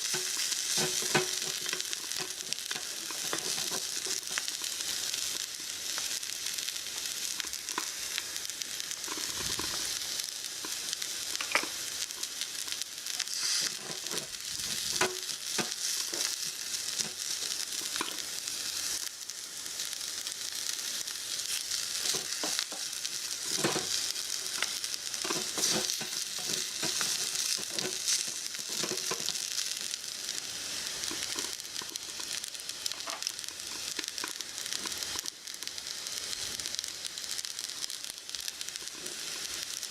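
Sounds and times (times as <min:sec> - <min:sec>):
food sizzling in a pan: 0:00.0 - 0:39.9
utensil tapping and scraping pan: 0:00.1 - 0:04.4, 0:11.4 - 0:11.7, 0:22.0 - 0:29.3.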